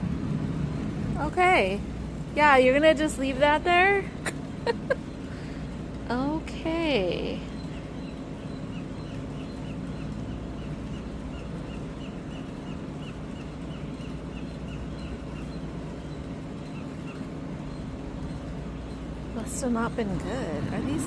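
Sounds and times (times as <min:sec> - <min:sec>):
steady low hum: 0:00.0 - 0:21.0
bird peeping: 0:07.4 - 0:19.3.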